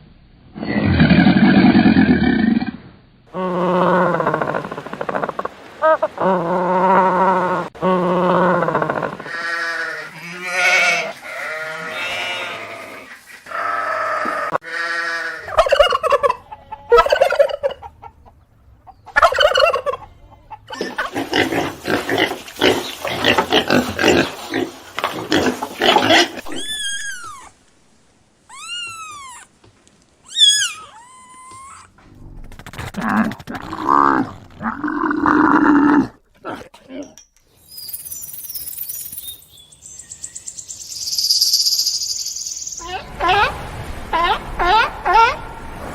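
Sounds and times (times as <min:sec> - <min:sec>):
farm animals calling: 0:08.6 - 0:27.5, 0:28.5 - 0:29.5, 0:30.2 - 0:32.0
high chirps: 0:37.5 - 0:43.6.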